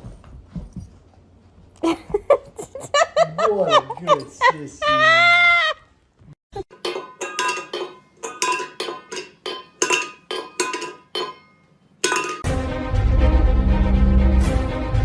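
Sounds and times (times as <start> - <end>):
clinking of metal or glass objects: 6.7 - 12.5.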